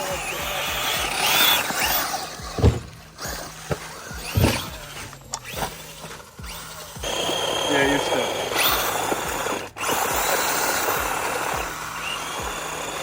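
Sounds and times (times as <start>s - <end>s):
rc car motors whining: 0.0s - 13.0s
cars thudding on ground: 0.2s - 7.2s.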